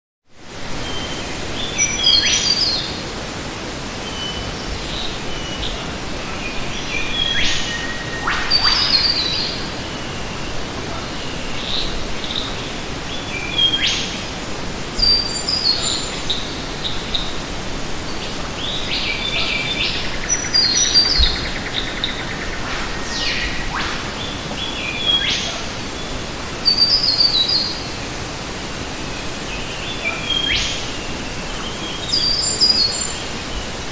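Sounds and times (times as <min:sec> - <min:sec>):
outdoor background hiss: 0:00.3 - 0:33.9
birds chirping and singing: 0:04.1 - 0:14.2, 0:14.9 - 0:17.5, 0:18.1 - 0:28.0, 0:29.2 - 0:33.8.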